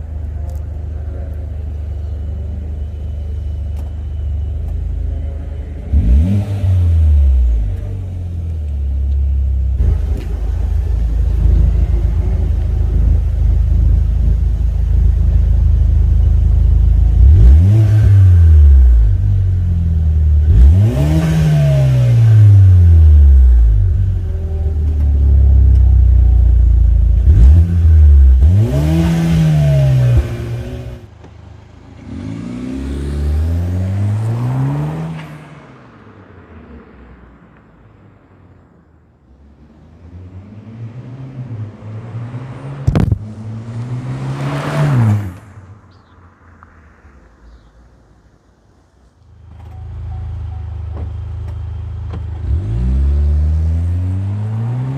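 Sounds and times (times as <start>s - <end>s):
car exhaust idling and revving: 0.0s - 35.2s, 45.2s - 54.9s.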